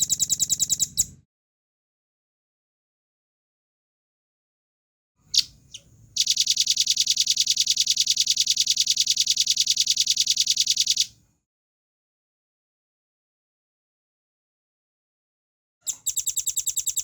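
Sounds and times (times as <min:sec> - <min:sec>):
bird calling with fast trill: 0:00.0 - 0:01.2, 0:05.2 - 0:11.1, 0:15.9 - 0:17.0.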